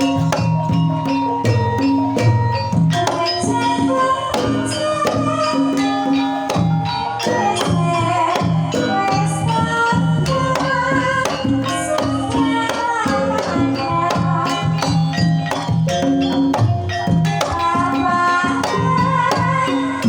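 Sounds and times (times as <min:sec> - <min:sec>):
drum strokes: 0:00.0 - 0:20.0
struck metal keyed instruments: 0:00.0 - 0:20.0
woman singing ornamented melody: 0:03.0 - 0:15.5, 0:17.4 - 0:20.0.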